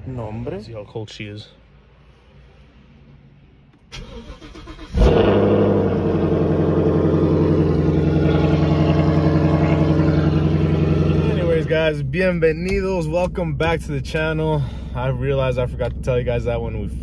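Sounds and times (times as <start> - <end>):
car engine idling: 3.9 - 17.0.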